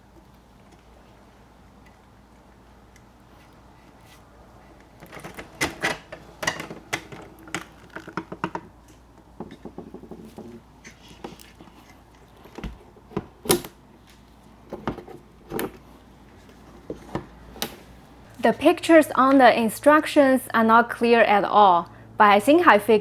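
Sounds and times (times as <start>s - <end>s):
window parts clicking and rattling: 0.0s - 14.0s, 14.6s - 15.9s.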